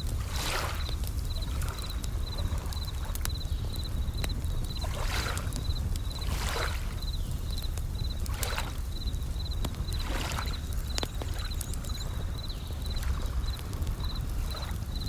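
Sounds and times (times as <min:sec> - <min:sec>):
campfire crackling: 0:00.0 - 0:15.0
crickets chirping: 0:00.0 - 0:15.0
waves washing in: 0:00.2 - 0:01.0.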